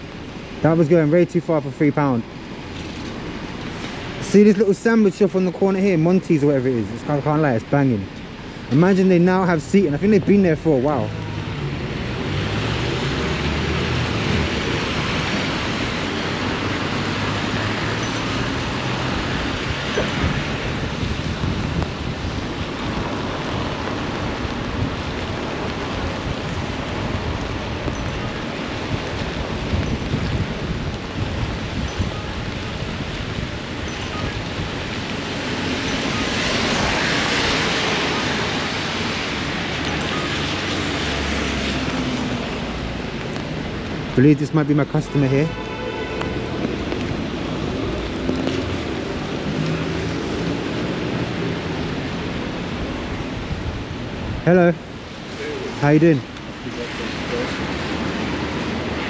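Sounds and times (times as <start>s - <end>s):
wind noise on microphone: 11.2s - 44.2s, 45.9s - 55.3s.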